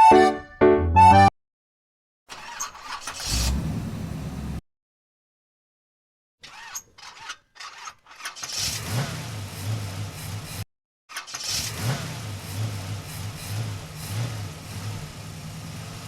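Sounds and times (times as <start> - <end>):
vehicle engine running: 3.3 - 4.6, 12.2 - 16.0.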